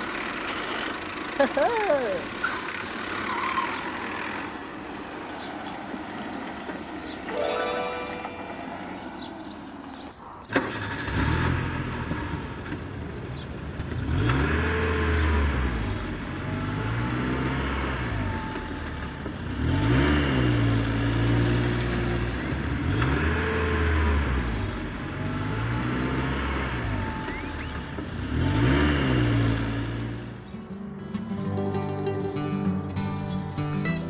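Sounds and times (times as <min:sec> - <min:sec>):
engine revving: 0:10.7 - 0:12.5, 0:13.8 - 0:30.3.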